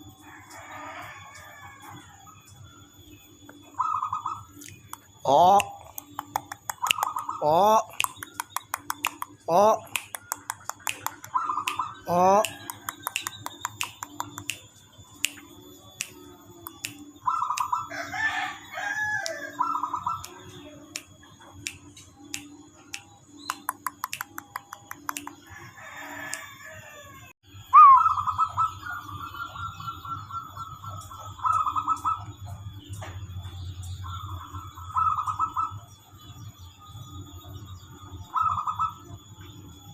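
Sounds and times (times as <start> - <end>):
bird calls: 0.0 - 26.6, 27.6 - 39.9
short clicks: 7.9 - 15.4, 20.2 - 25.4
loud drawn-out bird call: 27.6 - 30.6.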